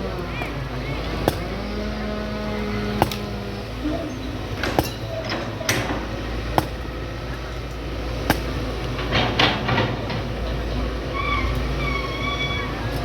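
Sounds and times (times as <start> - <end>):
excavator engine rumbling: 0.0 - 13.0
sharp knocks on scrap iron: 1.2 - 1.6, 3.0 - 3.4, 4.6 - 6.9, 8.3 - 8.6.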